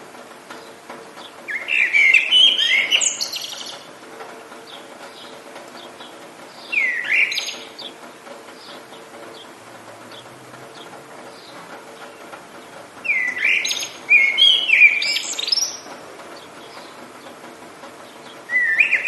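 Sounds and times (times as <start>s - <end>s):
rain hiss: 0.0s - 19.0s
songbird warbling: 1.5s - 3.9s, 6.6s - 8.0s, 13.0s - 15.9s, 18.5s - 19.0s.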